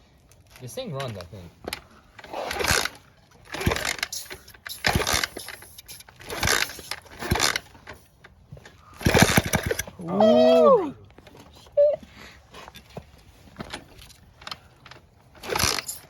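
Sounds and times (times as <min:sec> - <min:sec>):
engine being kicked over: 0:01.6 - 0:10.7, 0:13.5 - 0:16.0.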